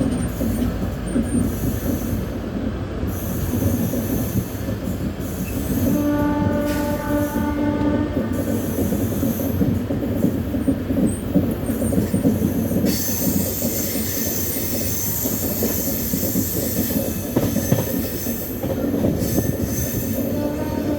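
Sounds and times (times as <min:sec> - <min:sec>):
train wheels rumbling and rattling: 0:00.0 - 0:20.9
locomotive horn: 0:05.8 - 0:08.5, 0:20.3 - 0:20.9.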